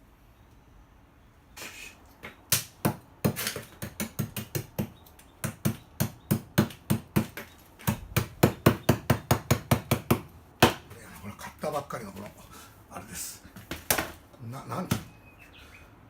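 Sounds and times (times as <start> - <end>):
rapid sharp knocks: 2.5 - 10.9.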